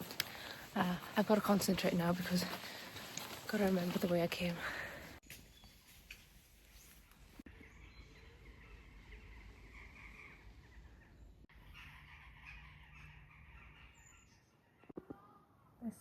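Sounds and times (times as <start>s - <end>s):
distant birds calling: 6.8s - 15.7s.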